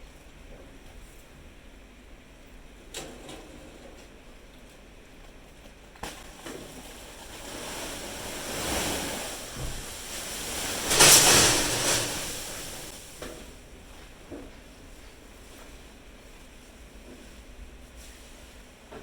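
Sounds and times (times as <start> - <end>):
rushing noise: 7.9 - 13.1.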